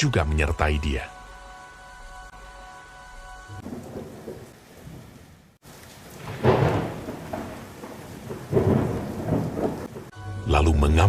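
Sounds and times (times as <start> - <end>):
rain: 3.5 - 10.4
loud thunderclap: 3.6 - 5.2, 6.0 - 10.2
rolling thunder: 3.6 - 10.2.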